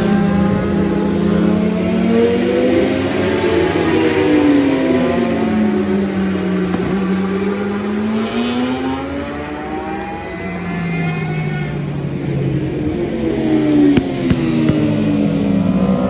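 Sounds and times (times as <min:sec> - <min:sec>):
racing motorcycles passing: 0:00.0 - 0:16.0.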